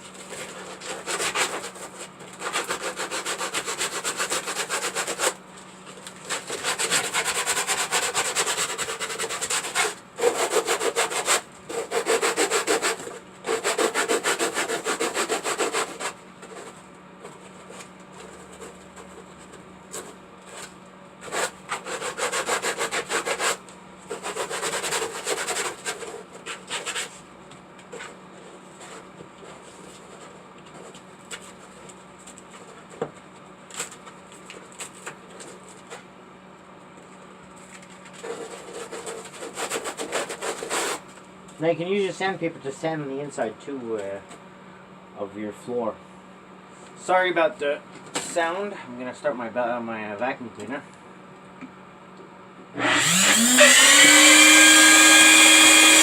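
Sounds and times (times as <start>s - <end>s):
sandpaper rubbing a surface: 0.2s - 5.4s, 6.2s - 16.8s, 21.2s - 27.2s, 38.2s - 41.0s.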